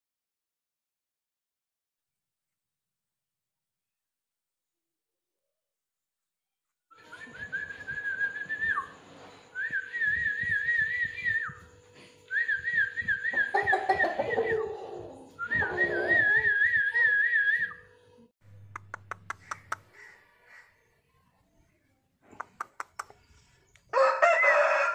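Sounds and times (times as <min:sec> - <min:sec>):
sharp clicks: 0:22.3 - 0:23.9.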